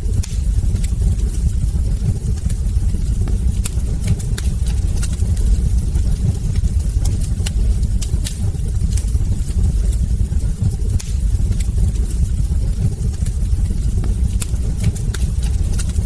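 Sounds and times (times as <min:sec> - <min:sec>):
logs crackling and popping: 0:00.0 - 0:16.0
wood fire roaring: 0:00.0 - 0:16.0.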